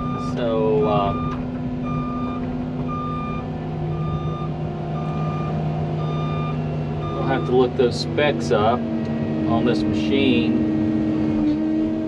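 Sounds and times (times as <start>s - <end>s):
excavator travel alarm beeping: 0.0s - 8.5s
diesel engine running: 0.0s - 12.0s.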